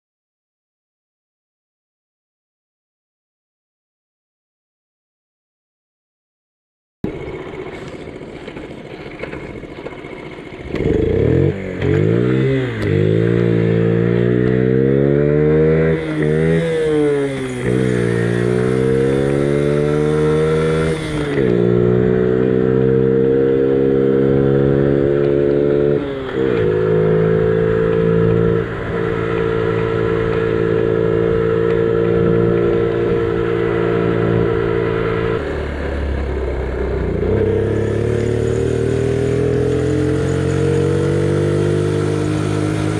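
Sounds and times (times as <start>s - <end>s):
minibike engine accelerating: 7.0s - 42.9s.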